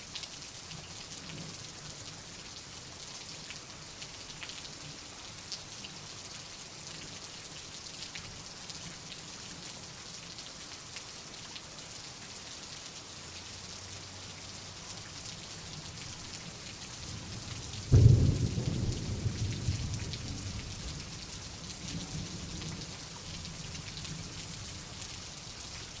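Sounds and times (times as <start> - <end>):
steady rain: 0.0 - 26.0
thunderclap rumbling: 17.9 - 21.0.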